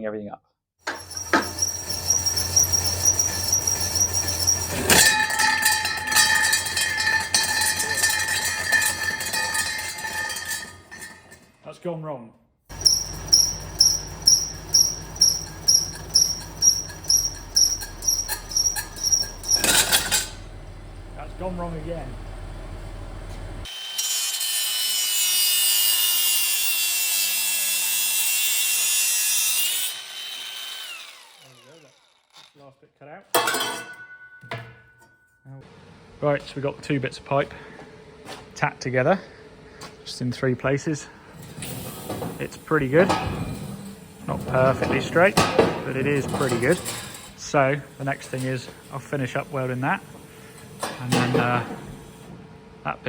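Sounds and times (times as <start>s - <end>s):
metal lathe humming and whining: 0.9s - 11.1s, 12.7s - 23.8s, 29.8s - 31.9s
angle grinder cutting steel: 0.9s - 11.5s, 12.7s - 20.7s, 23.6s - 32.6s
metal ringing tone: 0.9s - 11.5s, 12.7s - 23.7s, 33.5s - 35.4s.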